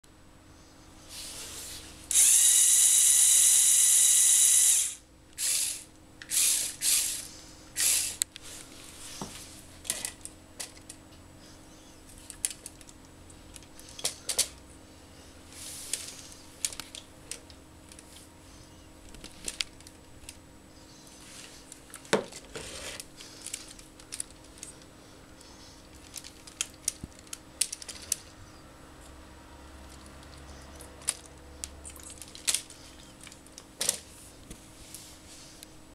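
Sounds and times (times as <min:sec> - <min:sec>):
electric motors and gears whirring: 0:01.1 - 0:11.0, 0:15.5 - 0:34.5
plastic parts clicking and rattling: 0:12.2 - 0:14.6, 0:15.9 - 0:18.2, 0:19.1 - 0:20.4, 0:21.7 - 0:24.9, 0:25.8 - 0:28.3, 0:29.8 - 0:34.0.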